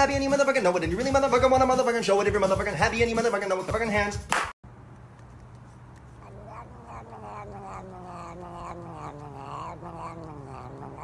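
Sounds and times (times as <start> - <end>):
cat yowling: 6.1 - 11.0.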